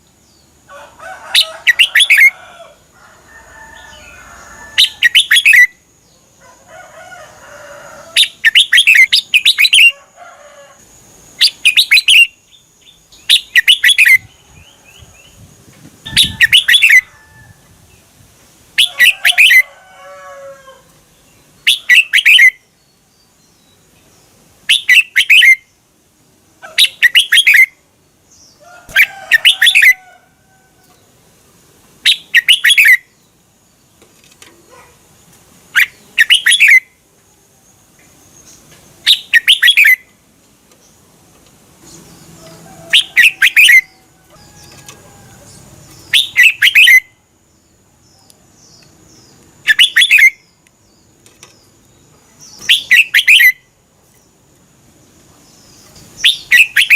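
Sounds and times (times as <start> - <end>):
bird singing rapid phrases: 4.8 - 5.7, 8.2 - 9.9, 11.4 - 14.7, 15.3 - 17.1, 21.5 - 22.6, 24.7 - 25.6, 26.7 - 27.8, 28.4 - 30.0, 32.0 - 33.3, 35.7 - 36.9, 38.4 - 40.1, 41.8 - 44.0, 44.6 - 47.2, 48.7 - 54.6, 55.2 - 56.9.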